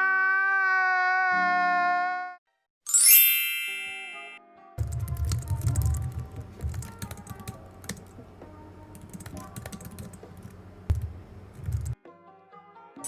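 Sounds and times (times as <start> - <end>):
soft background music: 4.4 - 13.0
computer keyboard typing: 4.8 - 12.0.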